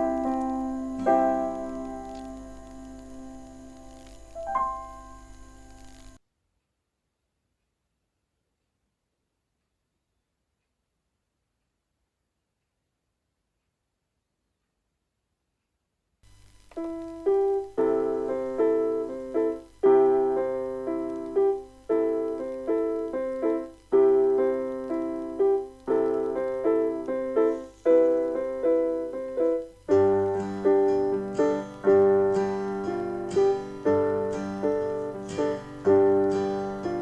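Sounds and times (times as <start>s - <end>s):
gentle piano music: 0.0s - 6.2s, 16.8s - 37.0s.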